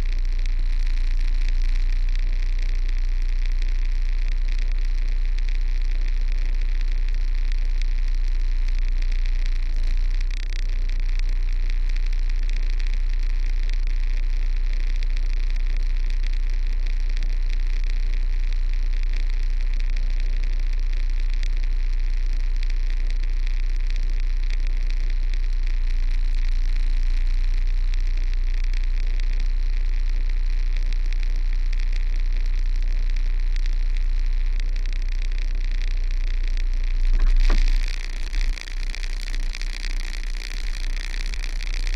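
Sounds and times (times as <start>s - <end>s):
steady hiss: 36.9s - 41.9s.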